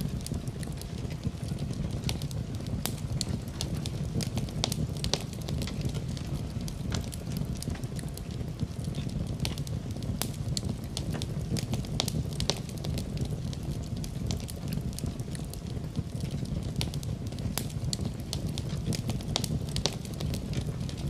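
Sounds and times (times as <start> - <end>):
fireplace fire crackling: 0.0 - 21.0.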